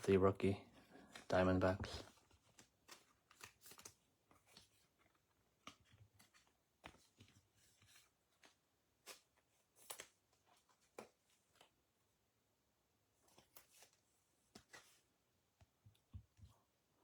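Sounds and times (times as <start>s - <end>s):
trading cards being handled: 0.0s - 11.7s, 13.2s - 15.1s.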